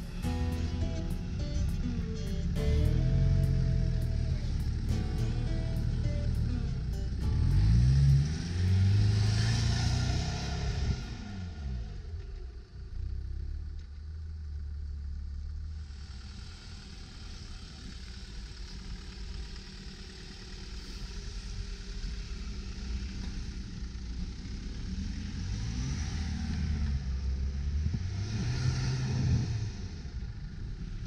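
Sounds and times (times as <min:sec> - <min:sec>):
truck engine revving: 0:00.0 - 0:12.2, 0:27.7 - 0:30.3.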